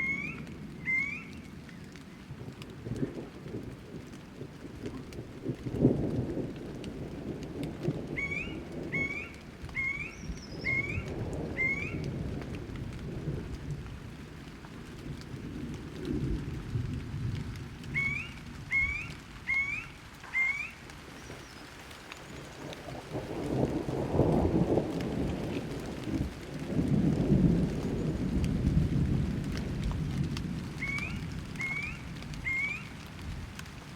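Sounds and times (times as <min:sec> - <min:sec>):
bird rising call: 0:00.0 - 0:01.8, 0:08.2 - 0:12.0, 0:17.9 - 0:21.8, 0:30.8 - 0:32.9
rain: 0:00.0 - 0:33.9
rolling thunder: 0:02.3 - 0:14.2, 0:14.9 - 0:19.8, 0:22.8 - 0:33.5.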